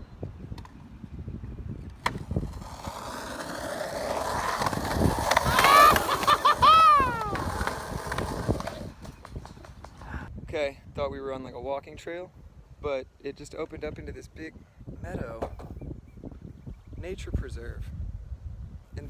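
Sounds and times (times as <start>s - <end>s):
skateboard wheels rolling: 1.8s - 10.2s.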